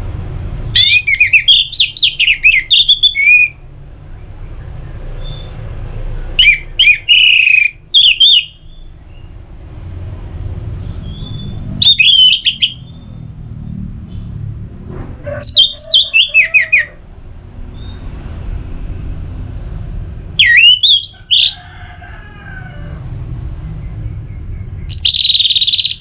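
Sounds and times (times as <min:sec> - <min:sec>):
steady low rumble: 0:00.0 - 0:06.4, 0:17.0 - 0:20.4
bird singing whistled notes: 0:00.8 - 0:03.6, 0:06.4 - 0:09.3, 0:11.0 - 0:13.2, 0:20.4 - 0:21.5, 0:24.8 - 0:26.0.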